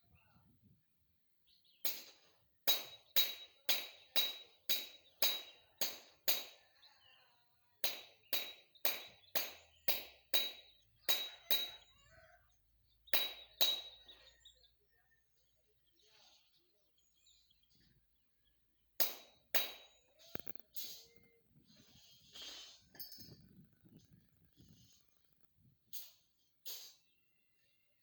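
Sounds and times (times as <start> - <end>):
metal tool strikes ringing: 2.7 - 6.6, 7.8 - 11.9, 13.2 - 14.1.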